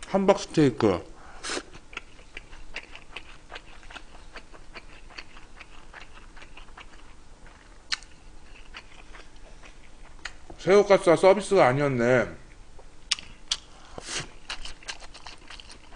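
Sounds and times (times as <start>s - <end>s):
man chewing: 1.3s - 10.6s, 12.8s - 15.9s.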